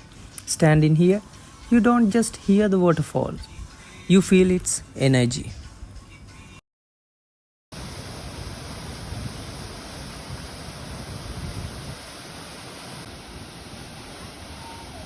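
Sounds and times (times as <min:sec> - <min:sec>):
waterfall roaring: 0:07.8 - 0:15.0.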